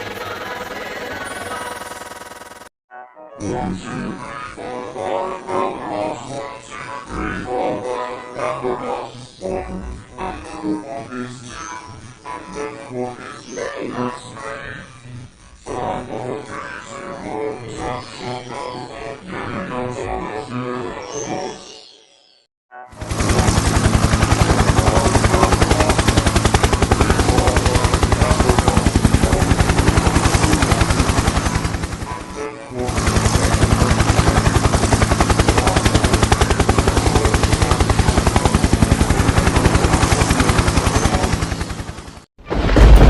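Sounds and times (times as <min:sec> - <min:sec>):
harsh pulsing distorted noise: 0:00.0 - 0:02.7, 0:23.0 - 0:43.0.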